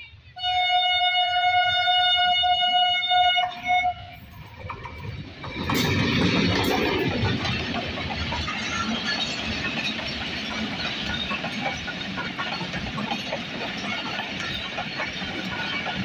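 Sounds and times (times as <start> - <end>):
diesel locomotive rumble: 2.6 - 16.0
train wheels clattering on track: 3.6 - 16.0.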